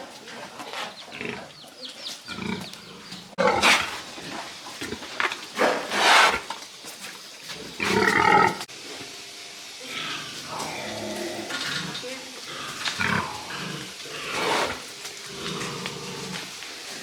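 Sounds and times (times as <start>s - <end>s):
pigs squealing: 2.3s - 6.5s, 7.5s - 8.7s, 9.8s - 16.6s.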